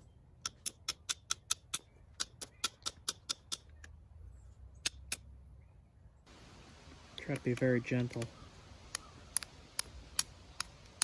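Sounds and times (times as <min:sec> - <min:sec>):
sharp taps knapping flint: 0:00.4 - 0:04.0, 0:04.8 - 0:05.3, 0:07.1 - 0:11.0.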